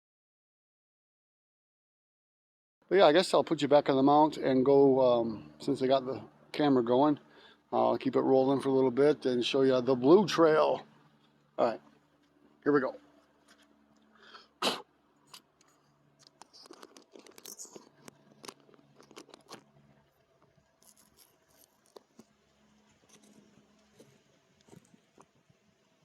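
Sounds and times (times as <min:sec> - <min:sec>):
camera handling clicks and scrapes: 0:15.3 - 0:19.8, 0:20.8 - 0:25.4.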